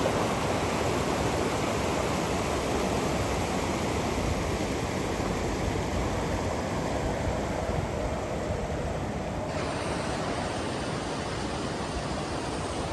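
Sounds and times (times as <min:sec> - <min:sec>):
river water rushing: 0:00.0 - 0:12.9.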